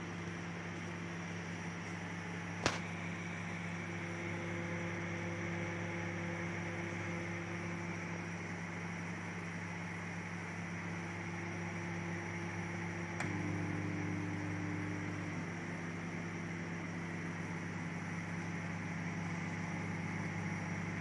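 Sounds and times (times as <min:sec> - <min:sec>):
microwave oven humming: 0:00.0 - 0:21.0
microwave click: 0:13.1 - 0:14.6.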